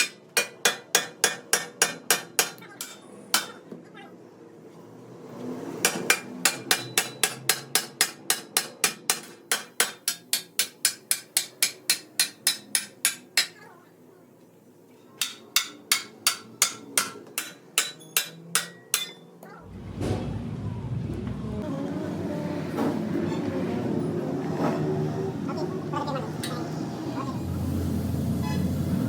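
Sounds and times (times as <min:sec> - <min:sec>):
hammer striking metal: 0:00.0 - 0:03.6, 0:05.8 - 0:13.6, 0:15.2 - 0:19.3.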